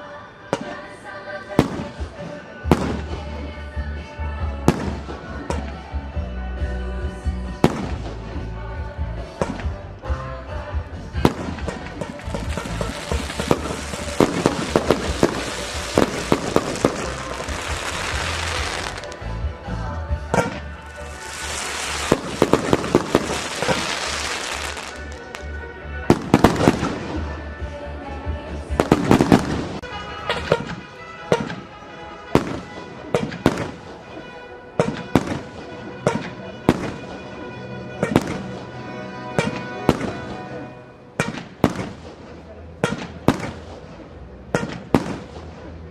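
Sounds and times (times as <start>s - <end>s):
music playing: 0.0s - 45.9s
fireworks bangs: 11.2s - 19.2s, 20.3s - 25.5s, 26.1s - 27.3s, 41.2s - 45.8s
fireworks hiss and crackle: 12.0s - 19.2s, 20.8s - 25.5s.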